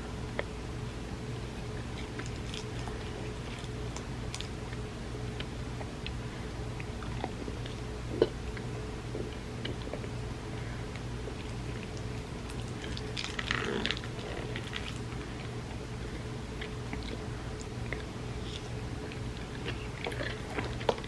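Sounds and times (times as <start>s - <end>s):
steady low hum: 0.0s - 21.0s
wet chewing and mouth clicks: 1.8s - 4.8s, 11.0s - 21.0s.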